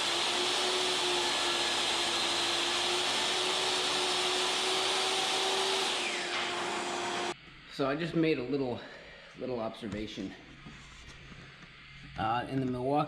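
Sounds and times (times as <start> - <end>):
table saw motor whine: 0.0 - 7.4.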